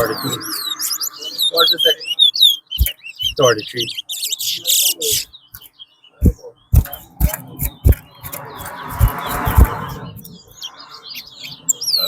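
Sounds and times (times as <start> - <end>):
finch chirping: 0.0 - 12.0
sharp low thumps: 6.2 - 10.3
rush of noise: 6.8 - 10.3.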